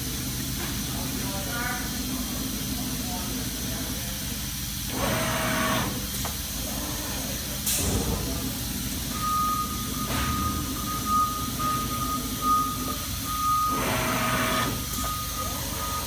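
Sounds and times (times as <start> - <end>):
machine hum: 8.2 - 16.0
high beeping tone: 9.1 - 16.0.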